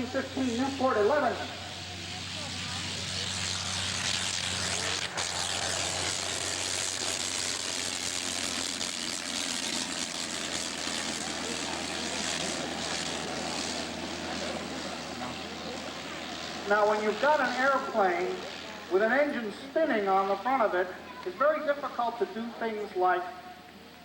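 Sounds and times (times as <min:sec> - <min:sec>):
rotary aircraft engine running: 0:00.0 - 0:24.0.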